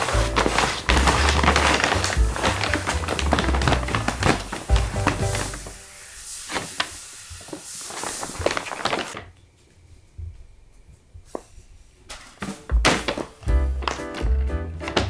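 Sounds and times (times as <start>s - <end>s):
bag rustling and crinkling: 0.0s - 9.3s, 11.6s - 15.0s
soft thumps: 12.1s - 15.0s.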